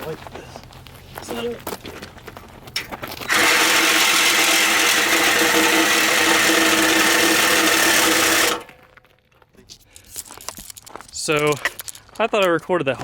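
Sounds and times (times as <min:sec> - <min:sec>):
power tool cutting steel pipe: 0:03.3 - 0:08.8.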